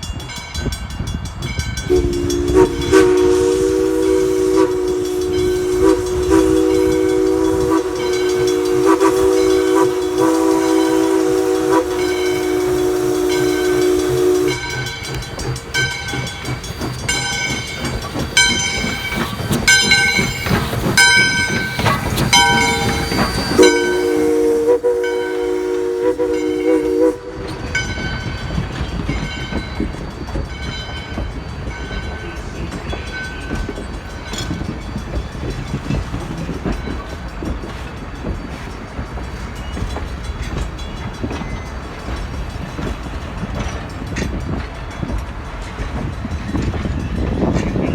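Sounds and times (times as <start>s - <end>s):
locomotive bell ringing: 0.0s - 47.9s
train running rumble: 0.0s - 47.9s
train whistle chord: 1.9s - 15.2s, 22.3s - 27.8s.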